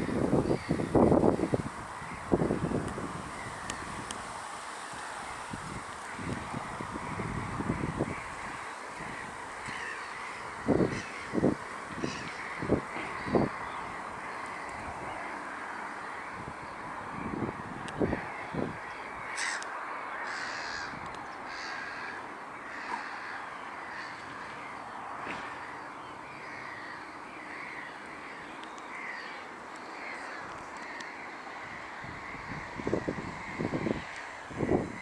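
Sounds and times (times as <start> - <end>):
wind thumps on microphone: 0.0 - 4.3, 32.1 - 35.0
steady wind: 0.0 - 35.0
gulls calling: 4.9 - 35.0.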